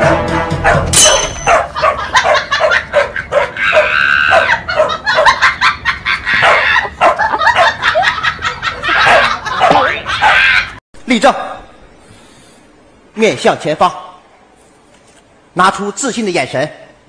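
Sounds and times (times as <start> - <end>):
dog barking: 0.6 - 5.4, 6.4 - 7.9, 8.9 - 10.6.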